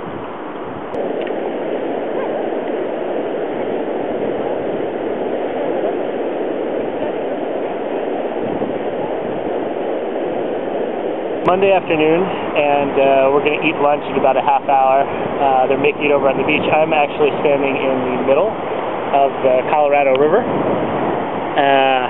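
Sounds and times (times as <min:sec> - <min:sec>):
river water rushing: 0:11.2 - 0:12.6.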